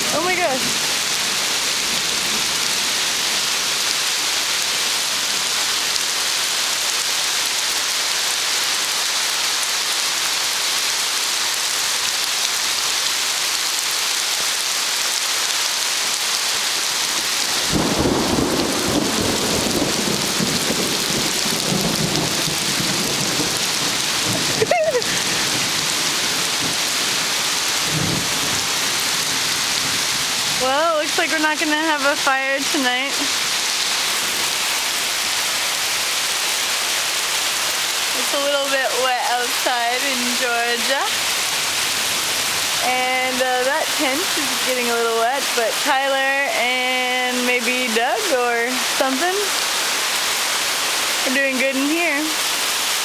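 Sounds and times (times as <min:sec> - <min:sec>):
torrential rain: 0:00.0 - 0:53.0
low rumble of thunder: 0:17.6 - 0:30.6.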